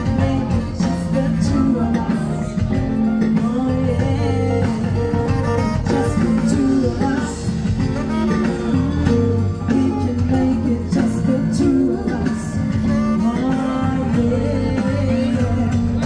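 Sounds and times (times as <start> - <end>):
guitar: 0.0 - 16.0
live band playing: 0.0 - 16.0.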